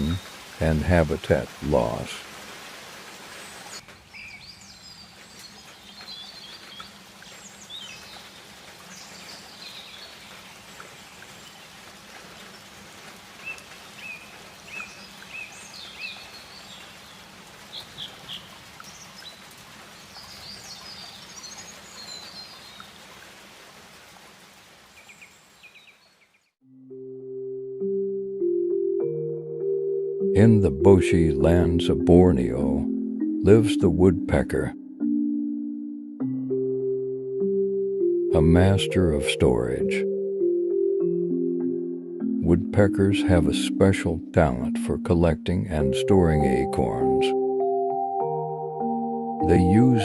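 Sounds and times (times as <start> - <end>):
bird chirps and trills: 13.4 - 19.4.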